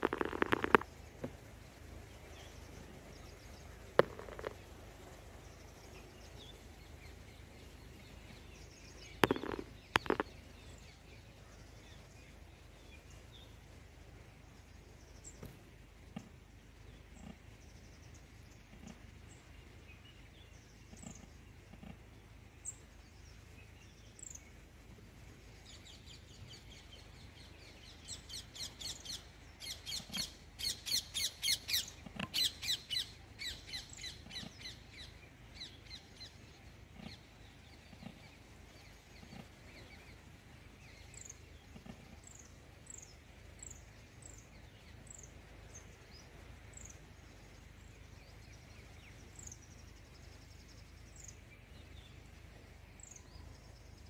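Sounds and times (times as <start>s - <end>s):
high falling bird chips: 0.0s - 1.4s, 9.2s - 10.5s
songbird chattering: 0.0s - 12.1s, 26.4s - 43.8s.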